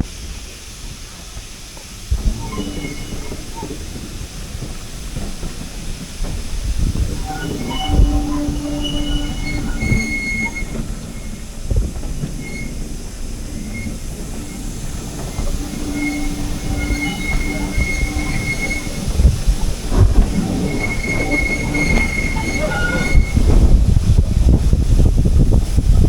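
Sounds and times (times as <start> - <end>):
train rumbling along track: 0.0 - 26.0
wheels squealing: 2.2 - 25.5.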